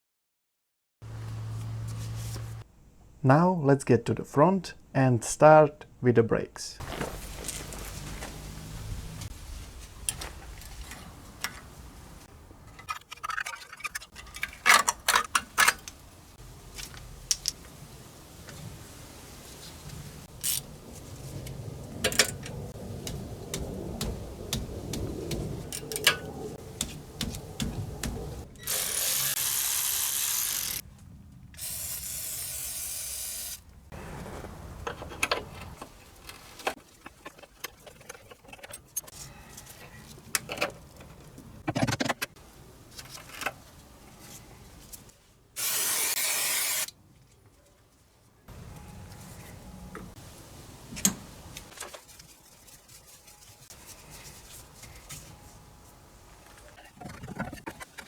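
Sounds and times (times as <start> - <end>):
hissing air blasts: 45.6 - 46.9.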